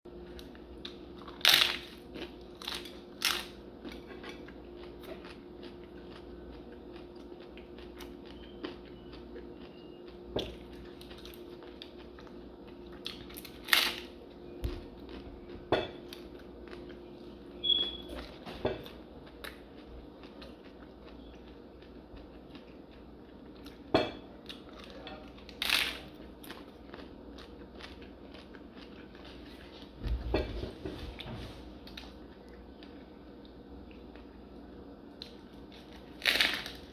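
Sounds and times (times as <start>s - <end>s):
taco crunching: 0.4s - 17.0s, 24.5s - 29.9s, 31.8s - 36.9s
chewing: 2.1s - 13.9s, 17.7s - 29.9s.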